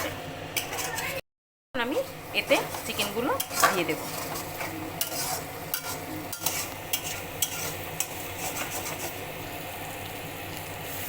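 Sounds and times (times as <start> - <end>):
spatula scraping pan: 0.0 - 1.2, 2.0 - 9.4
paste sizzling in oil: 2.0 - 11.0.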